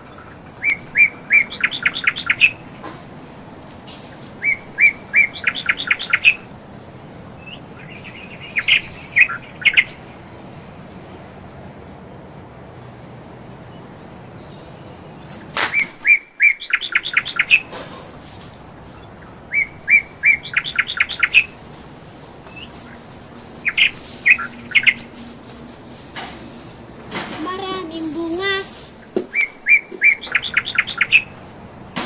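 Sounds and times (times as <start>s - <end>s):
bird chirping high notes: 0.6s - 2.8s, 4.4s - 6.5s, 7.4s - 10.1s, 14.4s - 17.8s, 19.0s - 21.6s, 29.3s - 31.3s.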